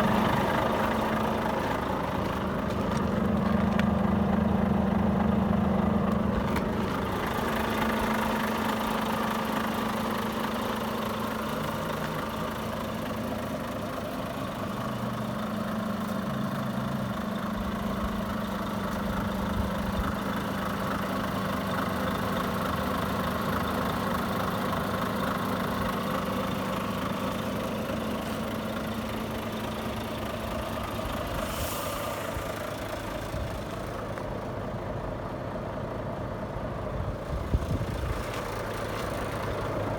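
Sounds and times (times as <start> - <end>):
diesel engine idling: 0.0 - 39.9
short hiss: 31.4 - 32.3.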